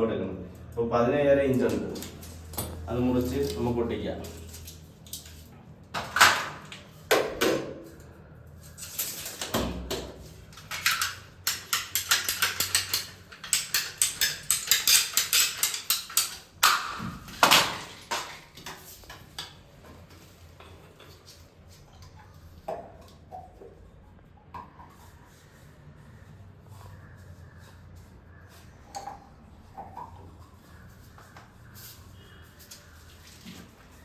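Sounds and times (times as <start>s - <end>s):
pipe fittings clicking and knocking: 8.8s - 25.0s.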